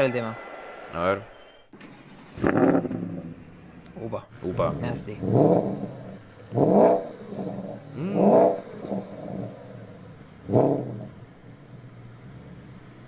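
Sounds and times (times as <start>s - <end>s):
car engine idling: 1.8s - 13.0s
car engine revving: 1.8s - 13.0s.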